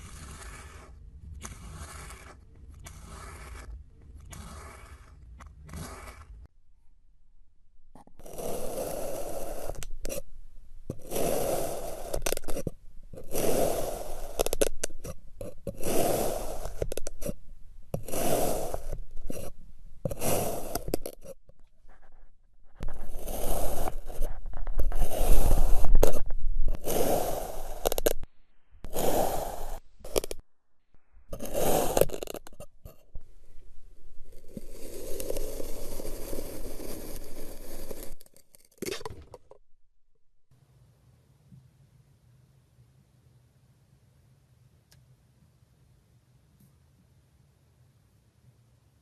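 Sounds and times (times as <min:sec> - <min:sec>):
scraping strokes: 0:00.0 - 0:06.5, 0:08.2 - 0:30.4, 0:31.3 - 0:39.1.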